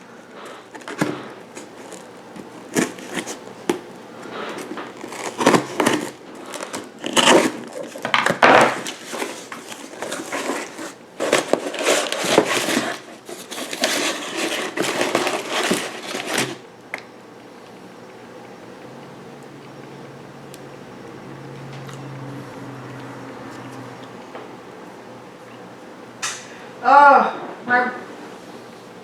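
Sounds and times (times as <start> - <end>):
packaging crinkling and rustling: 0.0 - 16.8.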